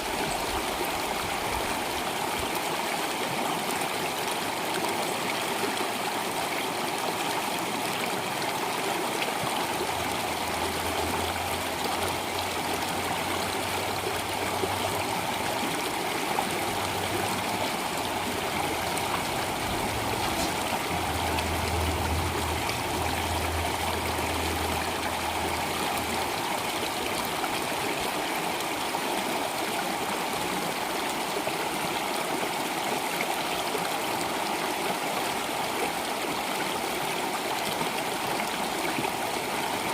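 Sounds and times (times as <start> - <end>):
stream water babbling: 0.0 - 39.9
low rumble: 18.4 - 26.3.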